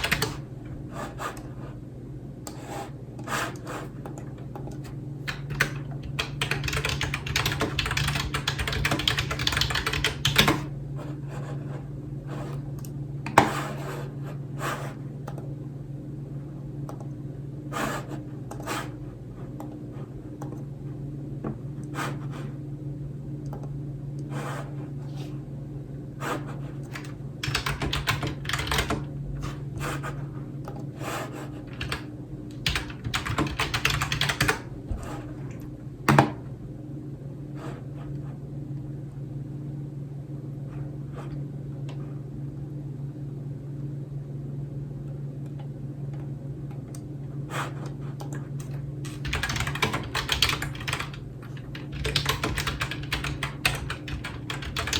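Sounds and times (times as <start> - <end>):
typing on computer keyboard: 0.0 - 0.4, 4.6 - 10.7, 26.9 - 29.0, 31.7 - 34.7, 48.2 - 54.9.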